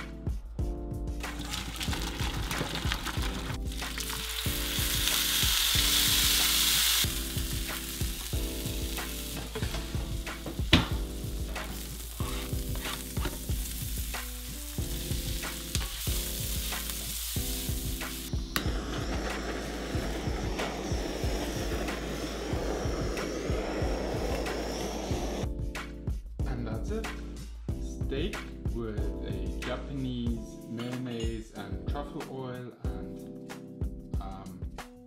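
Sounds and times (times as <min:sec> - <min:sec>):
background music: 0:00.0 - 0:35.0
food sizzling in a pan: 0:01.3 - 0:25.4
blowtorch flame hissing: 0:03.1 - 0:25.5.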